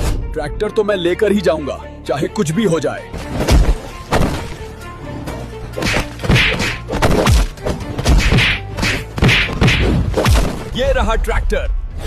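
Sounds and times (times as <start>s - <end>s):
background music: 0.0s - 12.0s
cartoon whacks and punches: 5.8s - 10.7s.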